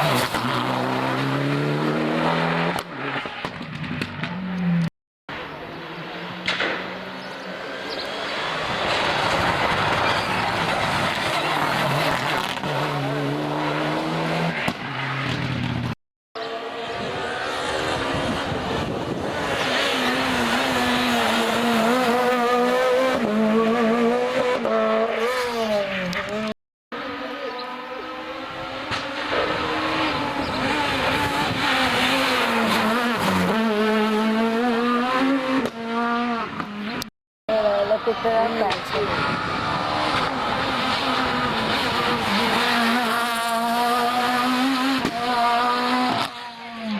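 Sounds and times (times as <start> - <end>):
rally car passing flat out: 6.0 - 26.5, 28.0 - 36.8.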